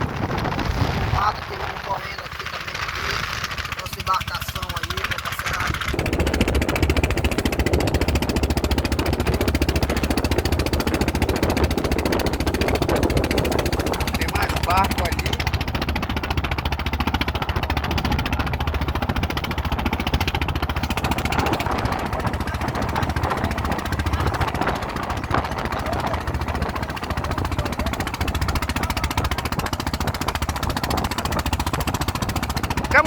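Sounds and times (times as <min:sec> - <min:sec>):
boat engine running: 0:00.0 - 0:33.0.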